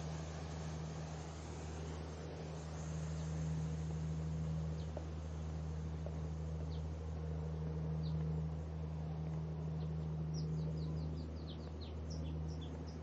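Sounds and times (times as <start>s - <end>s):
songbird chirping: 0.0s - 13.0s
steady low hum: 0.0s - 13.0s.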